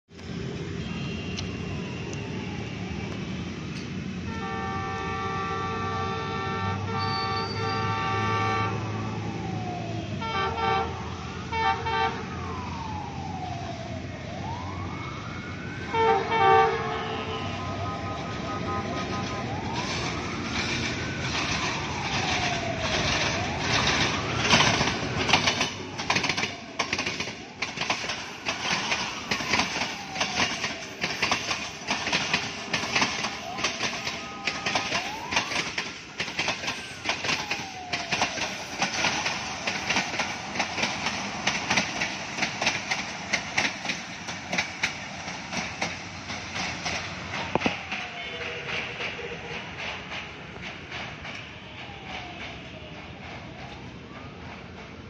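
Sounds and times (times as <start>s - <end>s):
wailing siren: 0.2s - 49.8s, 50.6s - 55.0s
locomotive horn blasts: 0.8s - 1.7s, 4.3s - 8.9s, 10.1s - 12.3s, 15.9s - 19.7s
train wheels clattering: 20.5s - 55.0s.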